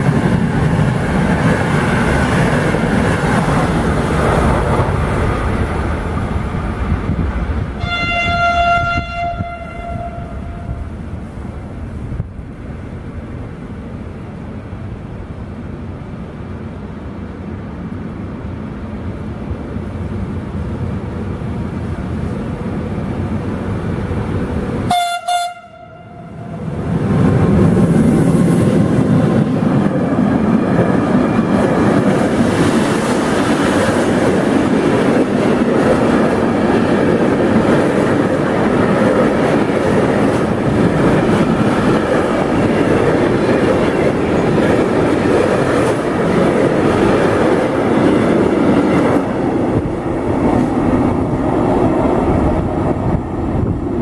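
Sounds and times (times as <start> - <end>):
train rumbling: 0.0 - 54.0
wheels rumbling on rails: 0.0 - 54.0
train horn blast: 7.8 - 10.9, 24.9 - 26.6.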